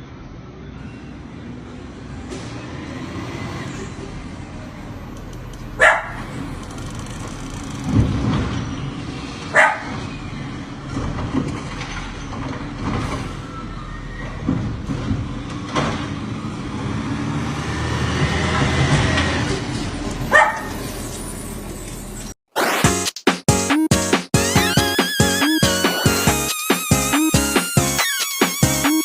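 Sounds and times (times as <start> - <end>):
dog barking: 5.8 - 6.3, 9.5 - 10.0, 20.3 - 20.8.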